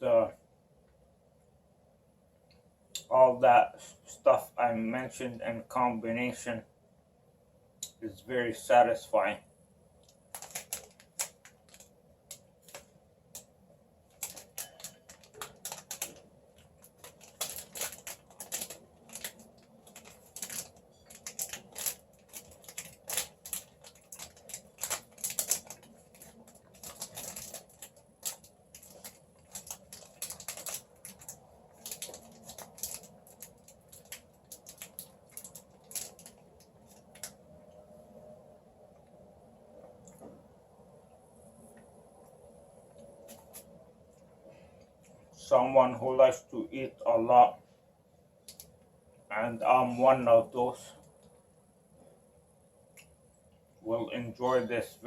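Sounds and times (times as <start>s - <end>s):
chewing crunchy chocolate bar: 14.1s - 37.4s.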